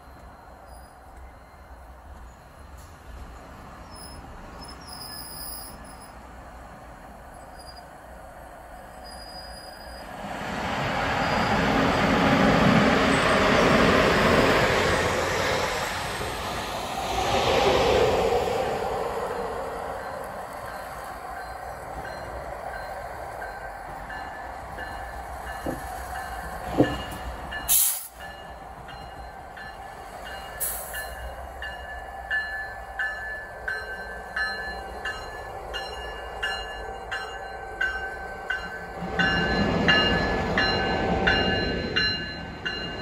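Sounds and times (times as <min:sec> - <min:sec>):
thin wheel squeals: 0:09.0 - 0:10.1.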